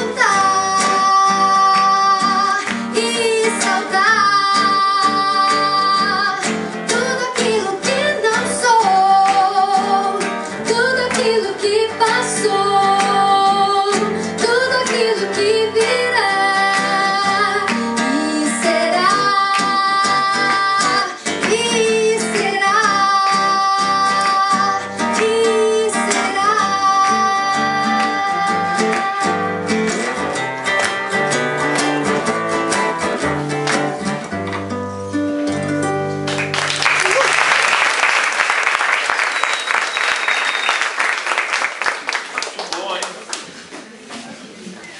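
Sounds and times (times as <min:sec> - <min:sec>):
woman singing: 0:00.0 - 0:30.1
acoustic guitar strumming: 0:00.0 - 0:36.8.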